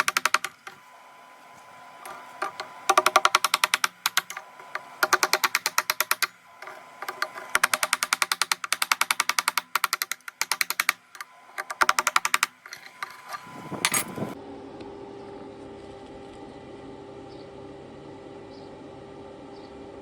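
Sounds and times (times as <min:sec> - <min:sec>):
rapid clicking: 0:00.0 - 0:00.8, 0:02.0 - 0:14.2.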